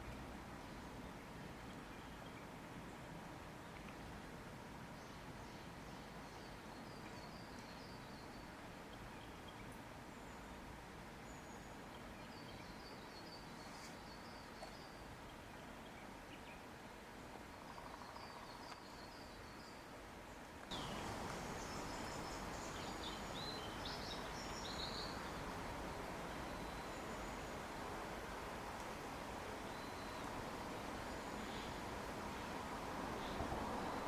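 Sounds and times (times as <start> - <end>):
soft outdoor hiss: 0.0 - 34.0
distant high chirping calls: 20.7 - 27.8, 29.6 - 34.0.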